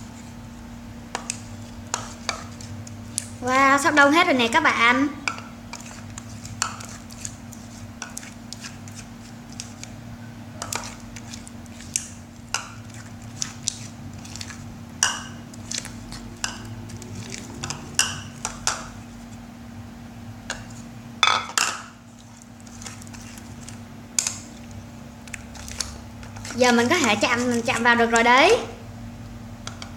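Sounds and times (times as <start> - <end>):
utensil scraping a bowl: 5.7 - 9.9, 10.6 - 19.4, 22.1 - 24.7
low hum: 14.0 - 20.5.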